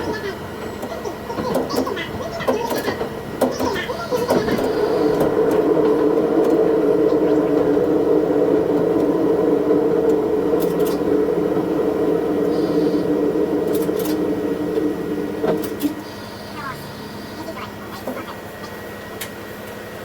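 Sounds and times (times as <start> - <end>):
railcar engine drone: 0.0 - 20.0.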